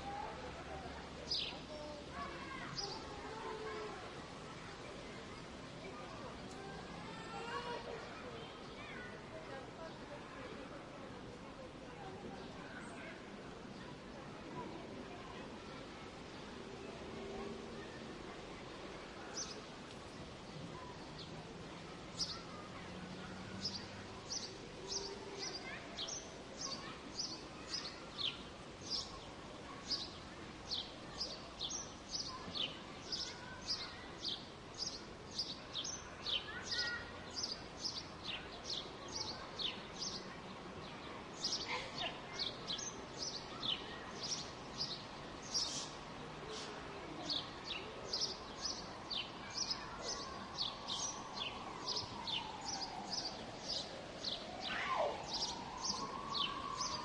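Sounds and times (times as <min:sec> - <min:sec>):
small birds chirping: 0:22.1 - 0:40.3, 0:41.0 - 0:57.0.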